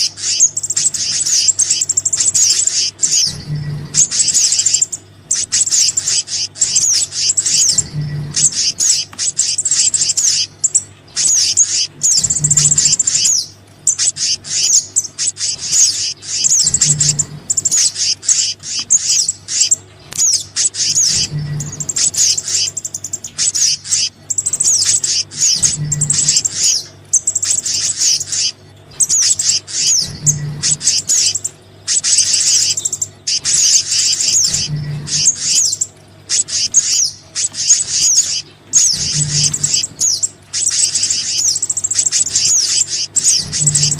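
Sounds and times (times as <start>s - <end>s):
songbirds chirping and trilling: 0.0s - 43.9s
steady low hum: 0.0s - 43.9s
low repeating pulse: 3.1s - 4.8s, 6.1s - 9.5s, 11.6s - 13.3s, 14.1s - 19.7s, 20.8s - 22.7s, 24.7s - 26.8s, 38.8s - 41.4s, 43.2s - 43.9s.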